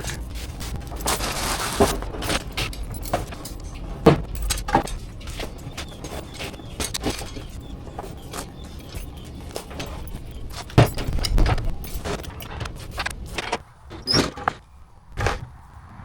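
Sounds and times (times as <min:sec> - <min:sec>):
keys jangling: 0:00.0 - 0:13.6
small knocks: 0:00.0 - 0:15.6
vehicle engine and road rumble: 0:00.0 - 0:16.0.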